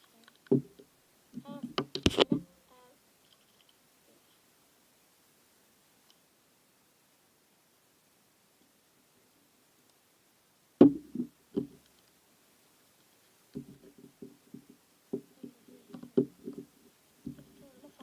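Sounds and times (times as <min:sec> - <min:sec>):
objects knocking: 0:13.6 - 0:17.6.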